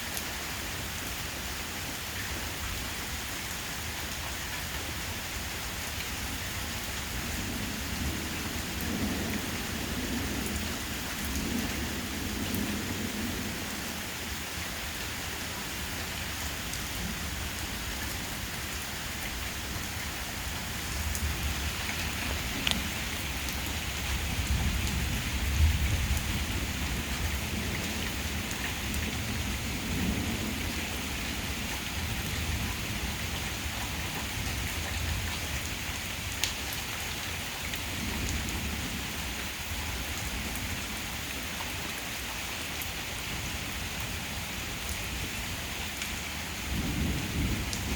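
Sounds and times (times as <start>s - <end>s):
steady rain: 0.0s - 47.9s
low thunder rumbling: 46.7s - 47.9s.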